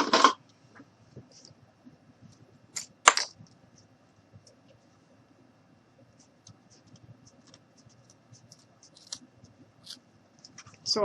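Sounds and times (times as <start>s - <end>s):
faint scratching and light ticks: 6.0s - 9.7s.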